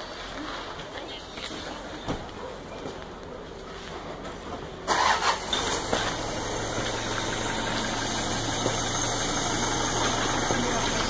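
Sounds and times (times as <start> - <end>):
vehicle engine idling: 3.0 - 11.0.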